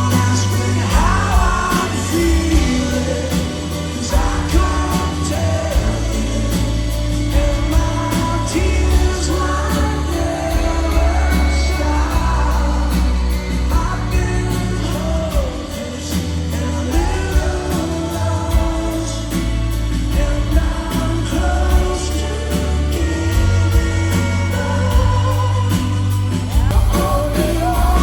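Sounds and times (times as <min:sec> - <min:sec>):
heavy bass: 0:00.0 - 0:28.0
live band playing pop-rock: 0:00.0 - 0:28.0
person singing: 0:00.0 - 0:28.0
steady drum beat: 0:00.0 - 0:28.0.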